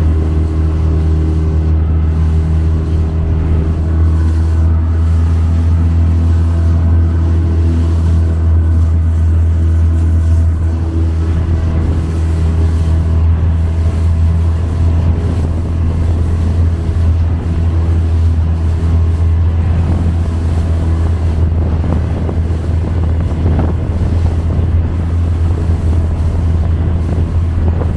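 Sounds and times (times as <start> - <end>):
motorboat engine drone: 0.0 - 27.9.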